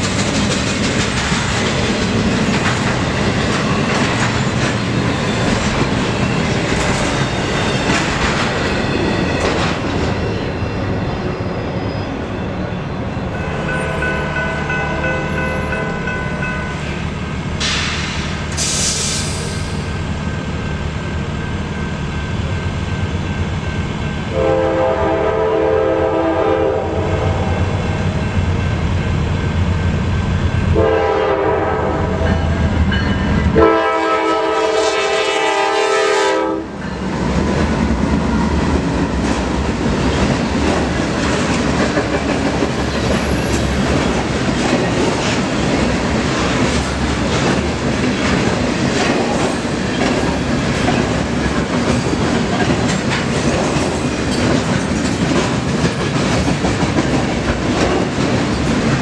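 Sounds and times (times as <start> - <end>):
train wheels clattering on rails: 0.0 - 11.1, 36.8 - 59.0
diesel locomotive engines: 0.0 - 59.0
train horn blasts: 24.3 - 27.9, 30.8 - 32.6, 33.5 - 36.8.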